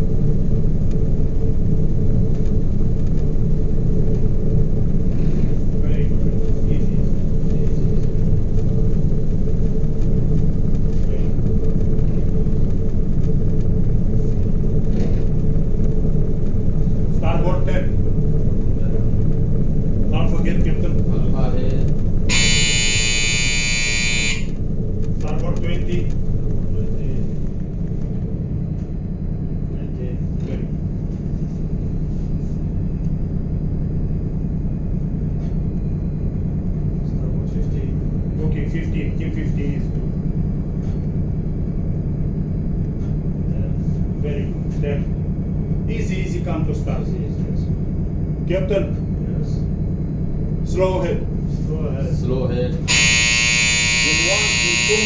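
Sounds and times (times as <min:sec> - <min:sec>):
ship engine rumble: 0:00.0 - 0:35.4
faint constant hum: 0:00.0 - 0:55.0.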